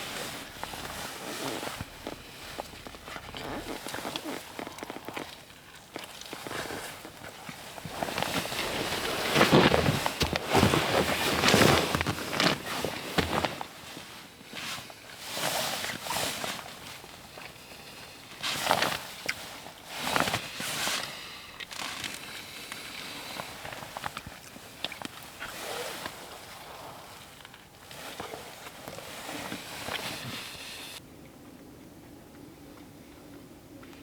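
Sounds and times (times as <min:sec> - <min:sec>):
footsteps crunching in snow: 0:00.0 - 0:05.4, 0:06.3 - 0:16.7
gear being handled: 0:07.9 - 0:13.7.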